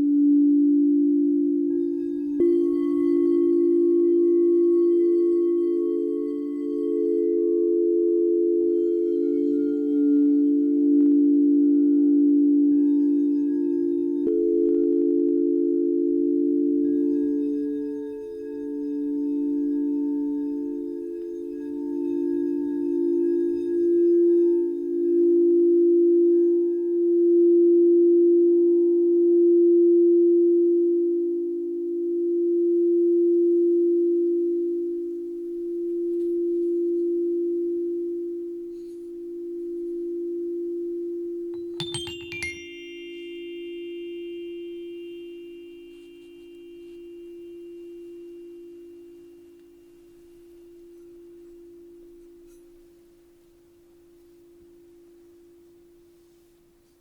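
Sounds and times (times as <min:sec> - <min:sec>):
singing bowl low tone ringing: 0:00.0 - 0:56.7
small high bowl strikes: 0:41.6 - 0:49.0.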